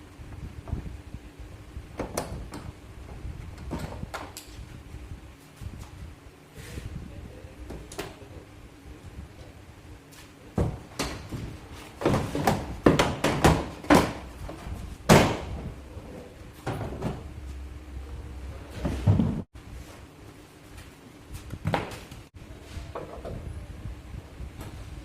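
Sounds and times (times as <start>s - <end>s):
sharp knocks on car sheet metal: 12.0s - 14.3s, 15.1s - 15.5s.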